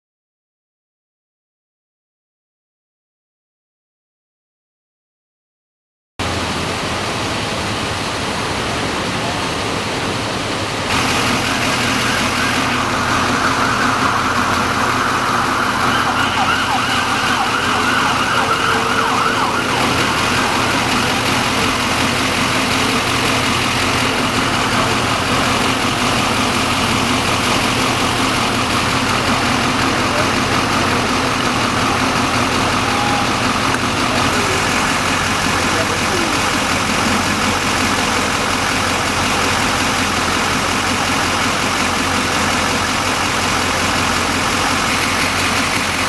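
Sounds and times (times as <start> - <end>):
traffic engine and road noise: 6.2 - 46.0
siren: 10.9 - 23.4, 31.6 - 34.8.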